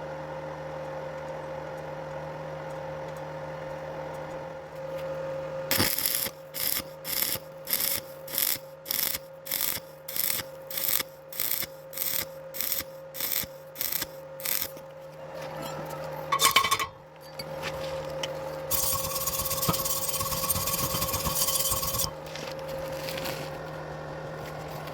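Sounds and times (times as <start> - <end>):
welding arc crackling and hissing: 5.7 - 14.9, 18.7 - 23.3.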